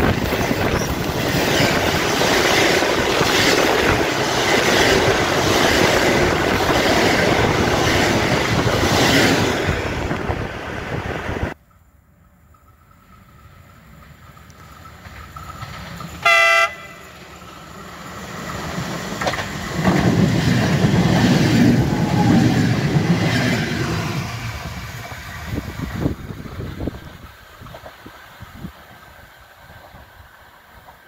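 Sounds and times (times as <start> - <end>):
train wheels rumbling past: 0.0 - 31.0
train horn blast: 16.2 - 17.2.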